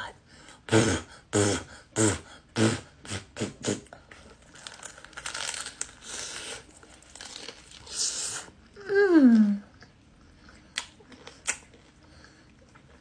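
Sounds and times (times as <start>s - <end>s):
crunching fried chicken: 4.3s - 8.0s.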